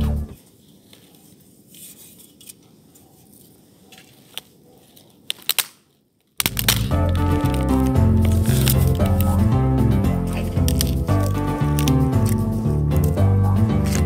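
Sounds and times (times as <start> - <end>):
background music: 0.0 - 0.4, 6.5 - 14.0
dry wood snapping: 5.2 - 9.6, 10.2 - 13.2, 13.8 - 14.0
dry wood scraping: 6.6 - 13.1.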